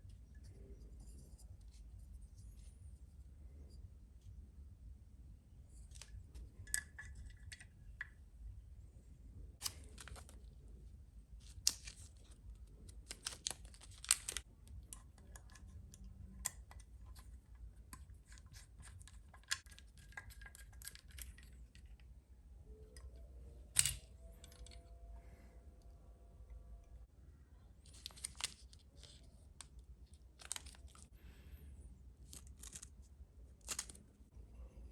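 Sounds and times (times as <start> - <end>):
small parts clicking: 11.4 - 22.0.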